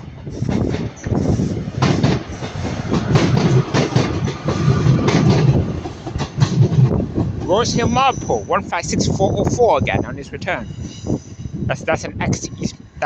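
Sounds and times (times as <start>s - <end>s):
train engine and wheel rumble: 0.0s - 13.0s
wheels clacking over rail joints: 0.2s - 8.5s.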